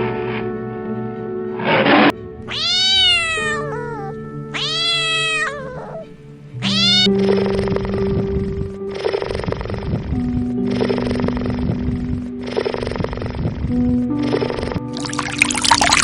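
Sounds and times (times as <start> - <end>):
background music held notes: 0.0 - 16.0
cat meowing: 2.5 - 7.8.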